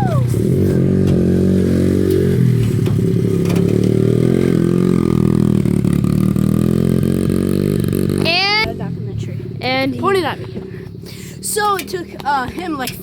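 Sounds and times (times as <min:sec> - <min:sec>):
dirt bike engine running: 0:00.0 - 0:09.8.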